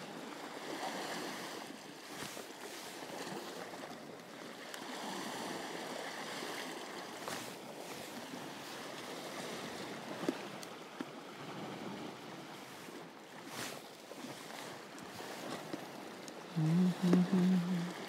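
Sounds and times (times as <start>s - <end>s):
waves washing against rocks: 0.2s - 18.0s.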